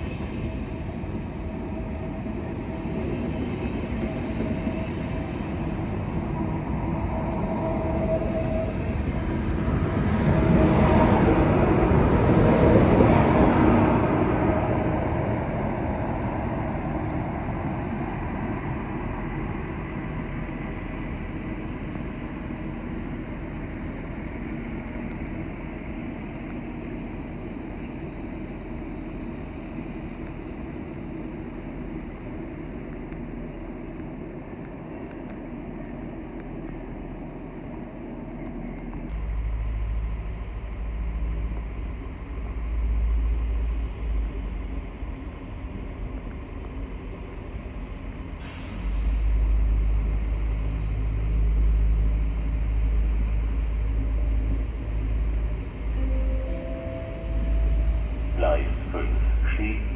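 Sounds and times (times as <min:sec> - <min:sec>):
train running through station: 0:00.0 - 0:59.9
deep low rumble: 0:49.4 - 0:59.9.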